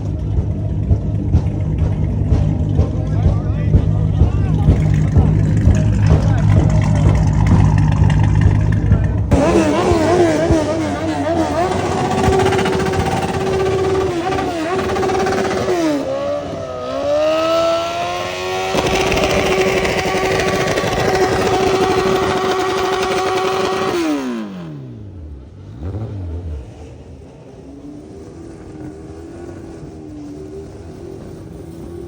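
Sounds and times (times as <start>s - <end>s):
engine revving: 0.0s - 32.0s.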